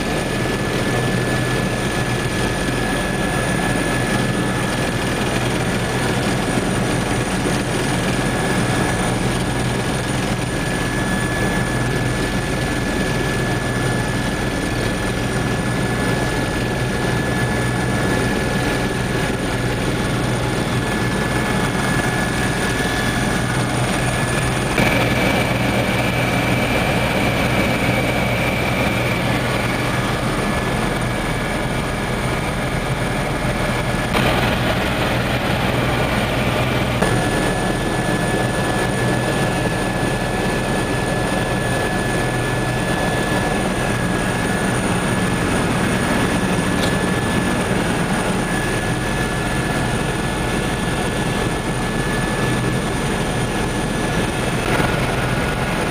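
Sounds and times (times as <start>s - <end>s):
helicopter engine and rotor drone: 0.0s - 55.9s
high whine: 19.2s - 39.9s.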